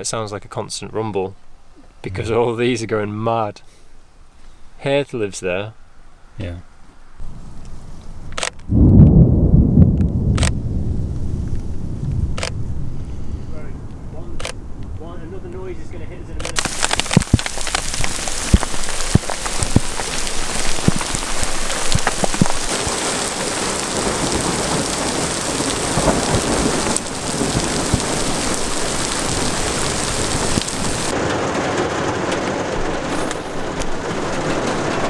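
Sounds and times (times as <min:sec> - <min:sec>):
heavy rain pounding: 0:07.2 - 0:35.0
rain drop impacts: 0:07.2 - 0:35.0
thunder rumbling: 0:07.2 - 0:35.0.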